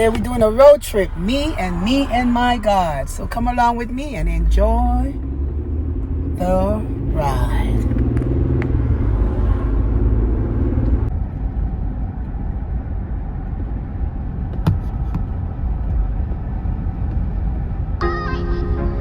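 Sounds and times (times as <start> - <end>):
steady hum: 0.0 - 9.1
car engine and tyre rumble: 0.0 - 18.0.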